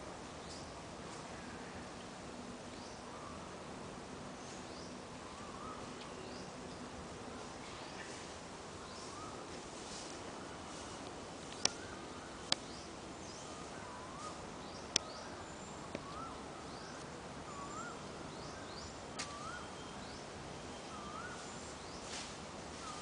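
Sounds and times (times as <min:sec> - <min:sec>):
outdoor hiss: 0:00.0 - 0:23.0
bird warbling call: 0:16.0 - 0:20.0.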